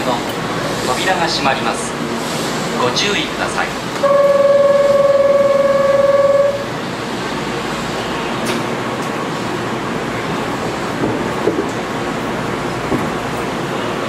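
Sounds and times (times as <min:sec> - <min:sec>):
electric train pulling away: 0:03.4 - 0:10.9
loud single-pitched tone: 0:04.0 - 0:06.8.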